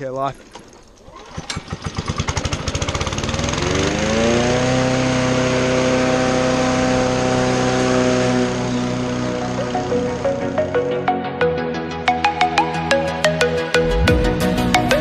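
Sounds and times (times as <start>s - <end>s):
string trimmer engine revving: 0.6s - 10.7s.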